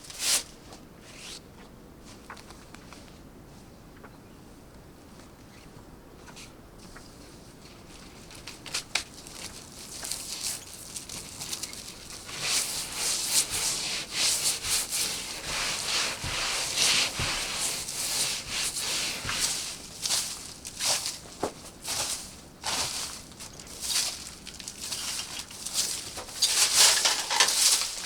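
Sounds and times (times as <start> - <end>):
rough scraping and rustling: 7.6 - 28.0.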